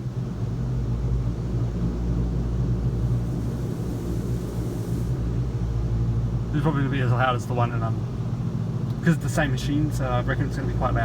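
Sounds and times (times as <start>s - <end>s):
low drone: 1.4s - 6.2s
water jets hissing on car body: 2.7s - 5.6s.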